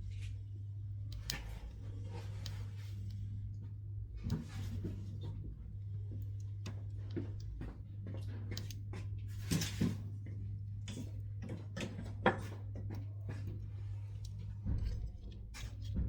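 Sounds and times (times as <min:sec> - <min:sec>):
steady low hum: 0:00.0 - 0:16.0
wood crackling in stove: 0:00.0 - 0:16.0.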